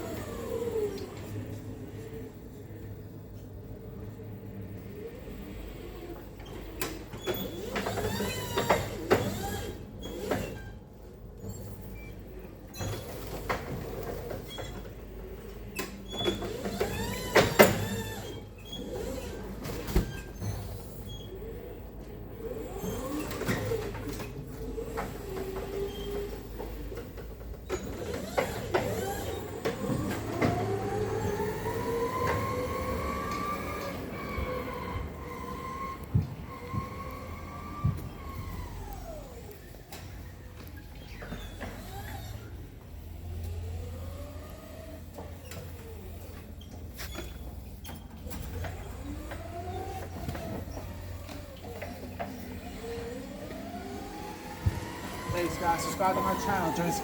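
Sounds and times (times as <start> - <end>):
metal clanks and squeaks: 45.1 - 52.6.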